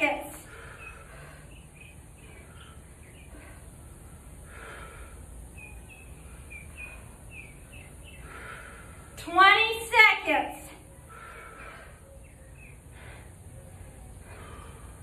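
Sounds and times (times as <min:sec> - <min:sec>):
birds chirping: 0:00.0 - 0:15.0
breathy exhales: 0:00.4 - 0:05.4, 0:11.0 - 0:15.0.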